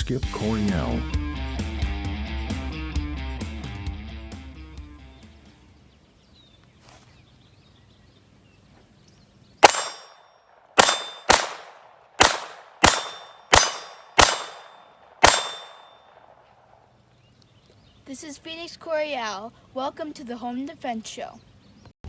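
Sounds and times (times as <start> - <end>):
sharp metallic bangs: 9.6 - 16.2.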